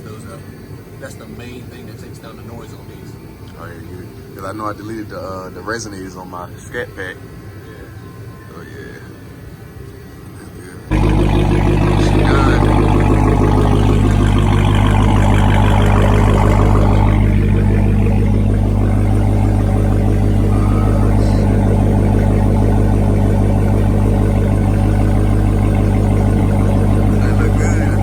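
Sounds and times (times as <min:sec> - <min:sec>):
car engine idling: 0:10.9 - 0:28.0.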